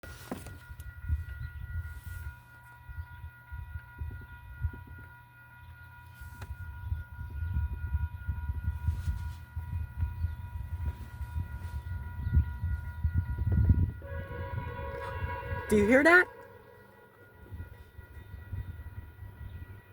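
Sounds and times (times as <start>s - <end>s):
wind buffeting microphone: 0.0s - 19.9s
faint high whine: 0.1s - 19.9s.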